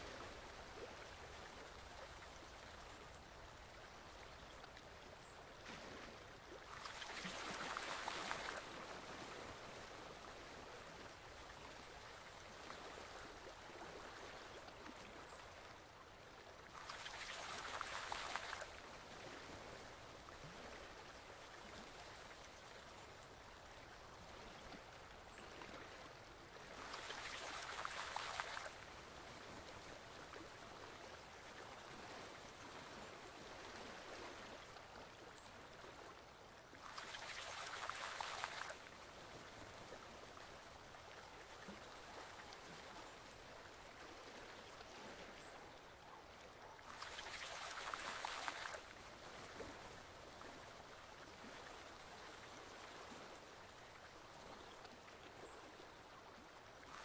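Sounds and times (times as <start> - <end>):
forest stream flowing: 0.0 - 57.0.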